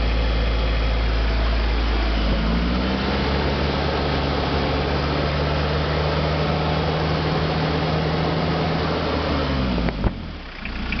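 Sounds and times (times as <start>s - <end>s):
diesel engine running: 0.0s - 11.0s
engine shutoff click: 9.9s - 11.0s.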